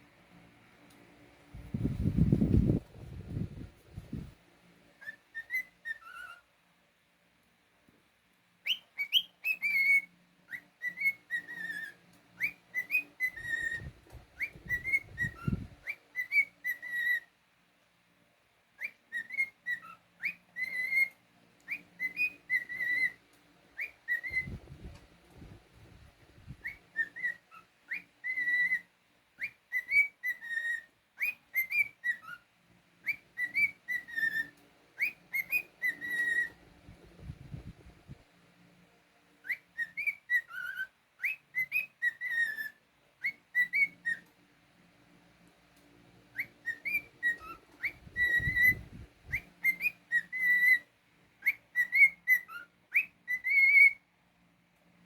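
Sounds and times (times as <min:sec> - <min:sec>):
cockatiel whistling: 0:05.0 - 0:06.4, 0:08.6 - 0:17.3, 0:18.8 - 0:23.2, 0:23.8 - 0:25.0, 0:25.8 - 0:37.9, 0:39.4 - 0:44.3, 0:46.3 - 0:54.1.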